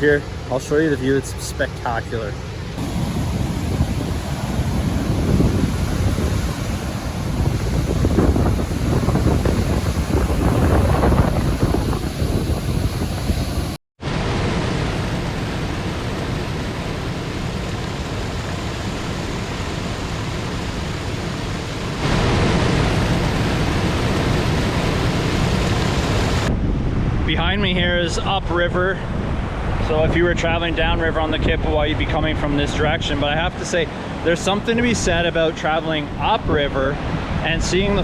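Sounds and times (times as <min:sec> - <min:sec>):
waterfall rushing: 0:00.0 - 0:26.5
wind buffeting microphone: 0:02.8 - 0:13.8, 0:17.5 - 0:28.0.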